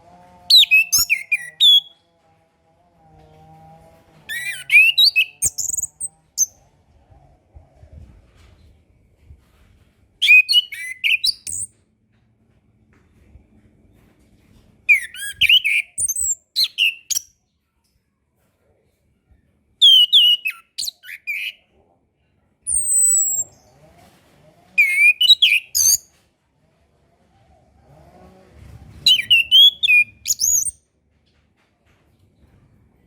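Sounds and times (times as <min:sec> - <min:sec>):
thrush singing whistled phrases: 0:00.5 - 0:01.9, 0:04.3 - 0:06.0, 0:10.2 - 0:11.7, 0:19.8 - 0:21.5, 0:24.8 - 0:26.0, 0:29.1 - 0:30.8.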